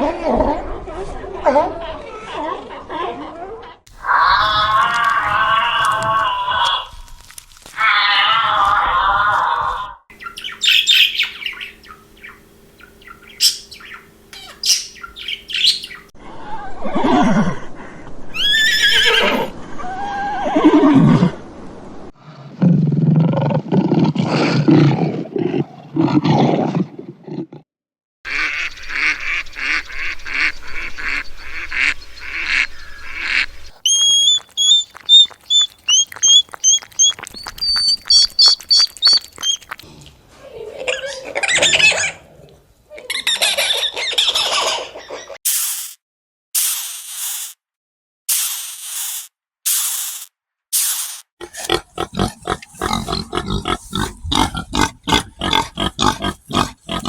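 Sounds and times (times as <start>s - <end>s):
gliding animal calls: 3.9s - 7.0s, 18.4s - 20.8s, 33.3s - 39.9s, 51.4s - 57.0s
high bird chirps: 10.1s - 16.1s, 33.8s - 39.8s
rapid pulsing animal call: 18.4s - 19.5s, 32.5s - 39.8s, 51.4s - 57.0s
bird whistled notes: 33.8s - 39.7s.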